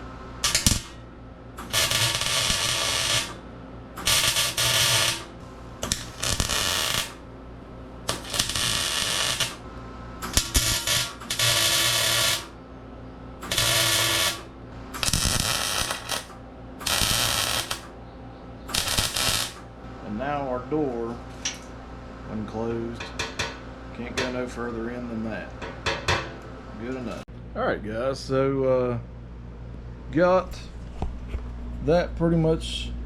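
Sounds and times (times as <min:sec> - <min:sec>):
steady low hum: 0:00.0 - 0:33.0
crackling welding arc: 0:00.4 - 0:01.0, 0:01.6 - 0:03.4, 0:04.0 - 0:07.2, 0:08.1 - 0:09.6, 0:10.2 - 0:12.5, 0:13.4 - 0:17.9, 0:18.7 - 0:19.7.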